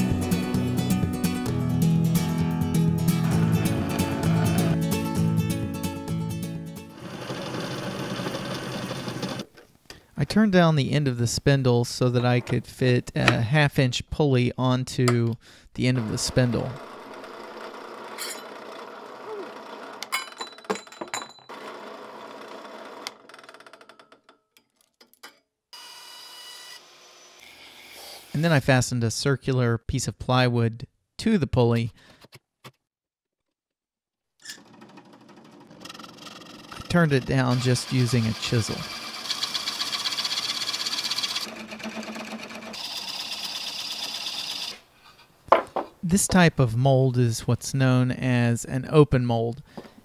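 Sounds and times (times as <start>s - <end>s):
chisel scraping wood: 3.1s - 4.8s, 35.7s - 42.9s
lathe spinning: 6.9s - 9.5s, 16.0s - 20.1s, 34.6s - 44.8s
metal tools clinking: 18.2s - 18.5s.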